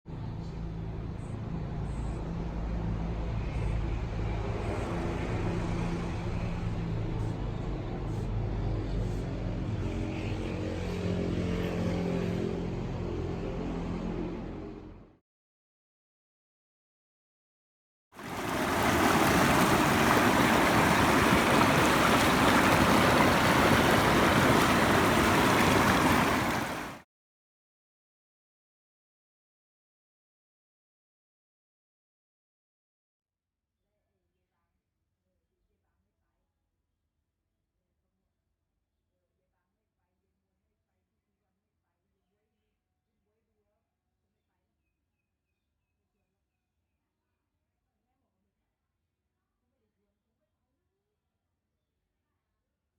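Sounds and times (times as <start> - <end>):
water rushing in a stream: 18.2 - 27.0.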